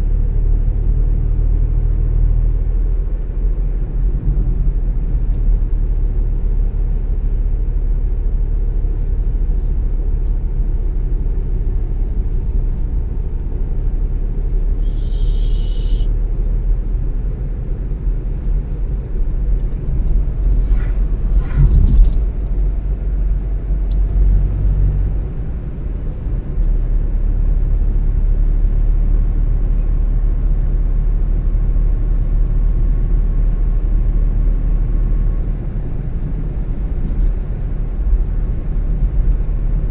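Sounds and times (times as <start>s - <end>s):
car road and engine rumble: 0.0s - 39.9s
short high hiss: 14.8s - 16.1s.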